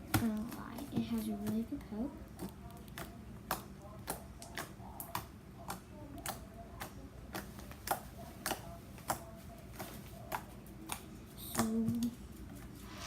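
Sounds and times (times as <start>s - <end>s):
slime clicking and popping: 2.4s - 9.2s.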